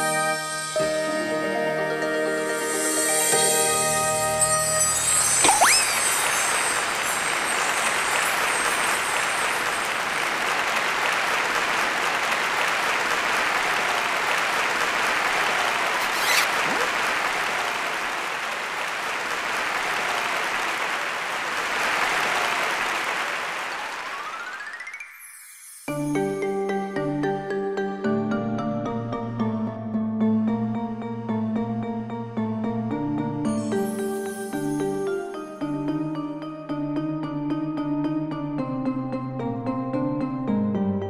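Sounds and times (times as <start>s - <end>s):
audience applause: 5.7s - 24.8s.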